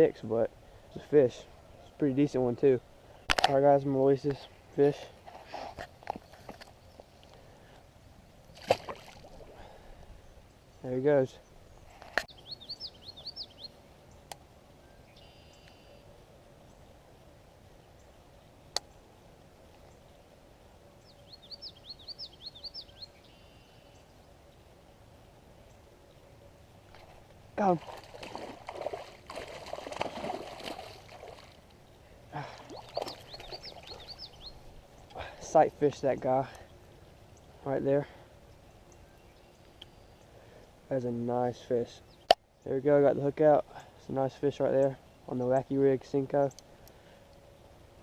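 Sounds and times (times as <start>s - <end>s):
water splashing: 8.5s - 9.7s, 27.0s - 31.7s, 32.4s - 34.3s
small bird chirping: 10.2s - 16.0s, 21.0s - 24.3s, 32.7s - 35.2s.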